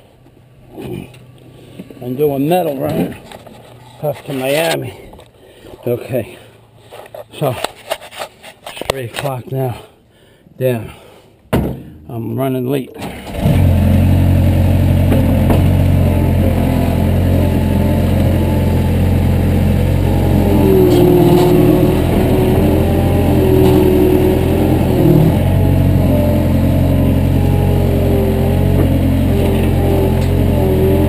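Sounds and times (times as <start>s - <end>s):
vehicle engine running: 13.3s - 31.0s
wavering high whine: 15.6s - 31.0s.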